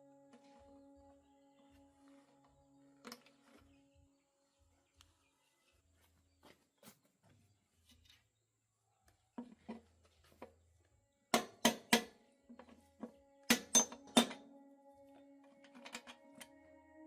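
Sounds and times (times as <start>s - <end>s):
faint steady hum: 0.0s - 6.5s
metallic tool knocks: 13.5s - 14.4s.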